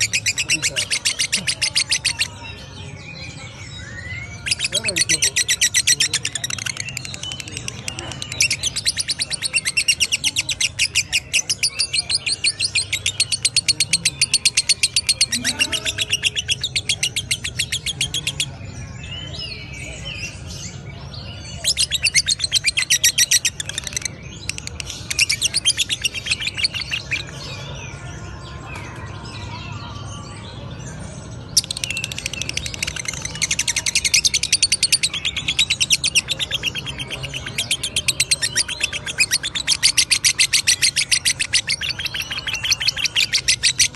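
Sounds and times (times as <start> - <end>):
lovebird chattering: 0.0 - 2.3, 4.4 - 18.5, 21.5 - 27.4, 31.6 - 43.9
soft bird twittering: 0.0 - 43.9.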